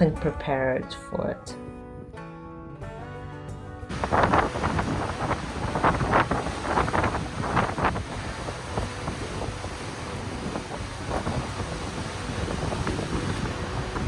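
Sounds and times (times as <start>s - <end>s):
wind buffeting microphone: 3.9s - 14.0s.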